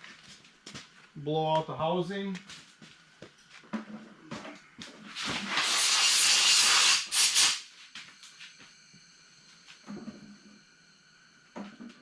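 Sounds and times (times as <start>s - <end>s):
compressed air blow gun hissing: 5.2s - 7.7s.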